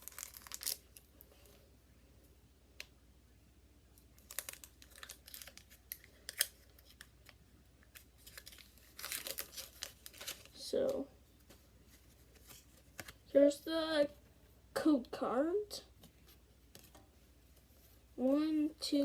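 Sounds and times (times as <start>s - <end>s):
foil pack crinkling and clicking: 0.0s - 1.1s, 4.2s - 10.6s.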